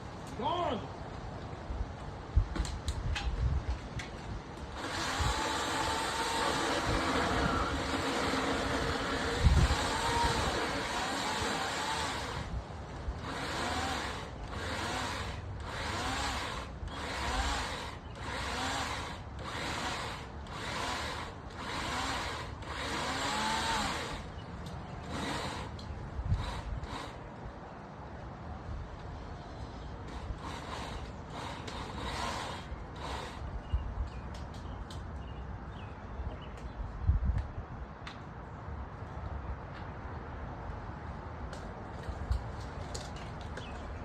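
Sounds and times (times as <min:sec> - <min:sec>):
electric chainsaw cutting wood: 0:04.7 - 0:12.6, 0:13.2 - 0:24.3, 0:25.0 - 0:27.2, 0:30.1 - 0:33.5.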